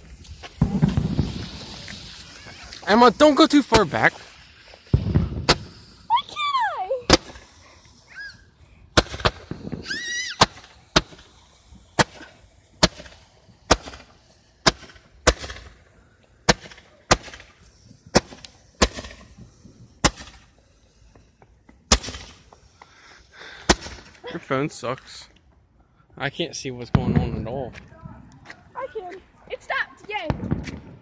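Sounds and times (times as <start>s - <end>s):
fireworks bangs: 0.0s - 24.3s, 26.8s - 31.0s.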